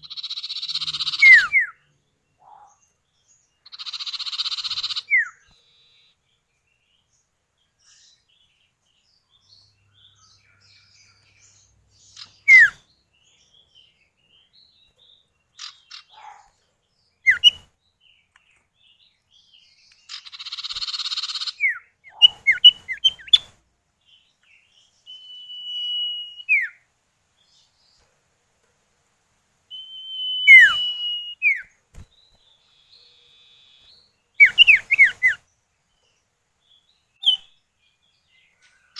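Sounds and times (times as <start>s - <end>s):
bird whistling calls: 0.0s - 1.8s, 3.8s - 5.5s, 12.2s - 12.8s, 17.3s - 17.6s, 20.3s - 23.5s, 25.1s - 26.8s, 29.7s - 31.7s, 32.7s - 35.4s, 37.2s - 37.6s.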